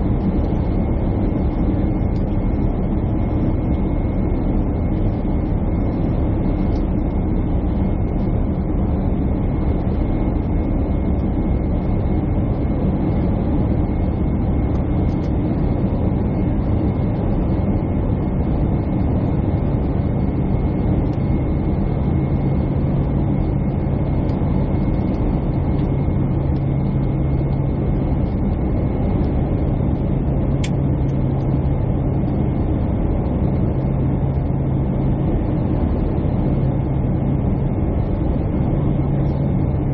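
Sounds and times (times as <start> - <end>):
jet cabin engine and airflow noise: 0.0 - 39.9
low hum: 0.0 - 39.9
thin constant whine: 0.0 - 39.9.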